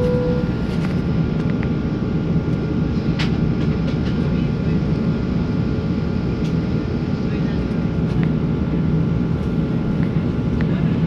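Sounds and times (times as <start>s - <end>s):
thin steady whine: 0.0s - 1.0s.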